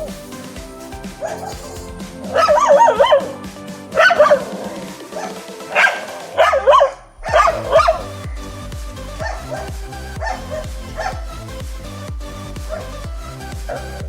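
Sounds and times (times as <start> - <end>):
background music: 0.0 - 14.0
dog whining and yipping: 2.4 - 3.3.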